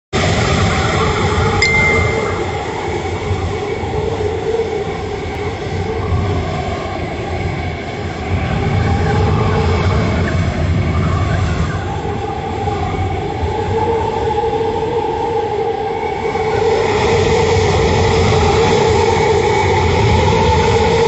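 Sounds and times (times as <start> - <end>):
high whistle: 1.6 - 2.9.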